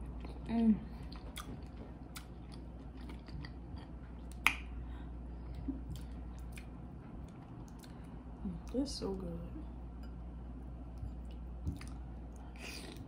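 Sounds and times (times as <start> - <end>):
chewing with wet mouth clicks: 0.2 - 4.7, 5.5 - 8.8, 11.0 - 13.0.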